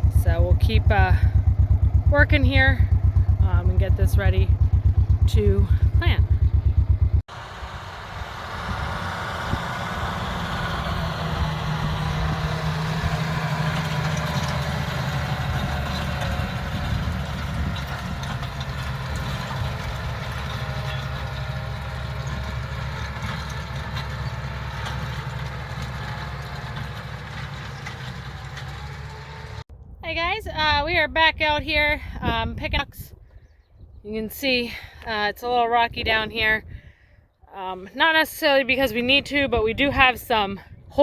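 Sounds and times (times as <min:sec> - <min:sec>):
vehicle engine running: 0:00.0 - 0:29.7.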